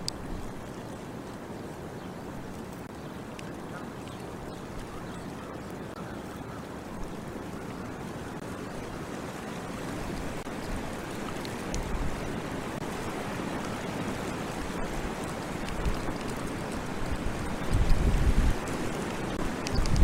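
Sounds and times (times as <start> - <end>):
wind on microphone: 10.0 - 20.0.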